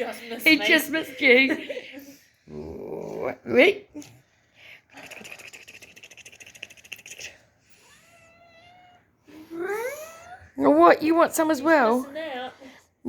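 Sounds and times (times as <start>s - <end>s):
cat meowing: 7.7s - 9.2s.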